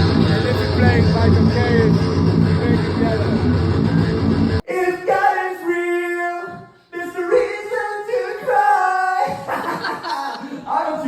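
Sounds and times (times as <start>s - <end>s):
heavy rock band playing: 0.0s - 4.6s.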